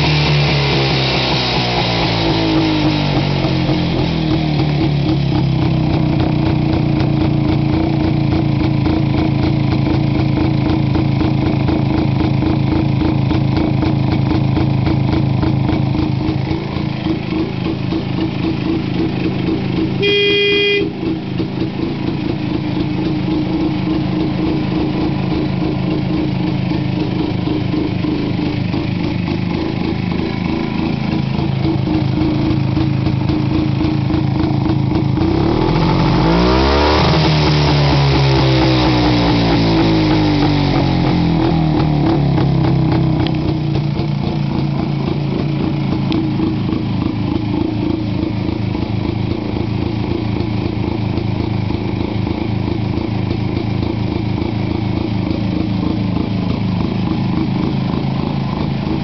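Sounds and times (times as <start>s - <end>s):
motorcycle engine idling: 0.0s - 59.0s
short horn toot: 20.0s - 21.2s.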